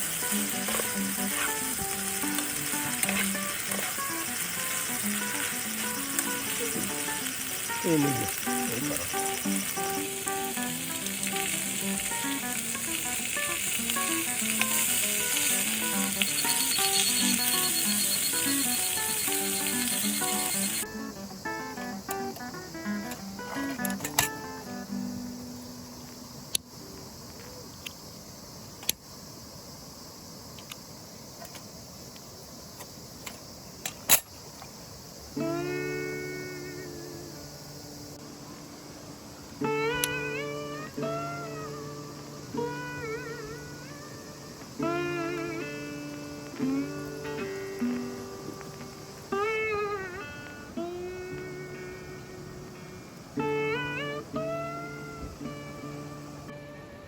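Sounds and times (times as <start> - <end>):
food frying with sizzle: 0.0 - 21.6
background music with simple melody: 0.0 - 25.9, 39.6 - 57.0
steady high hiss: 0.0 - 57.0.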